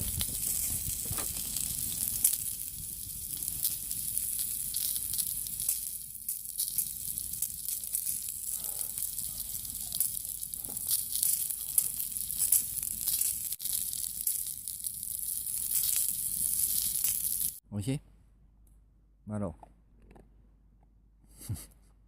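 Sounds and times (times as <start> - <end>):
food sizzling over campfire: 0.0 - 17.6.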